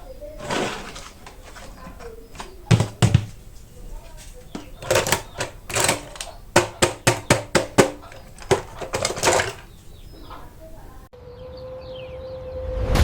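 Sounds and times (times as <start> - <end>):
plastic packaging clicks and taps: 0.4 - 3.4, 4.1 - 9.8.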